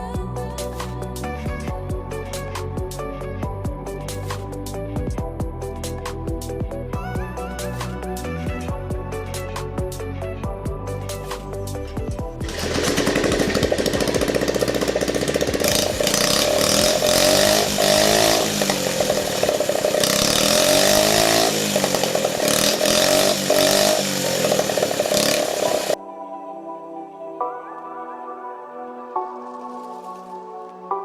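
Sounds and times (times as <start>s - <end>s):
small engine revving: 11.7s - 26.0s.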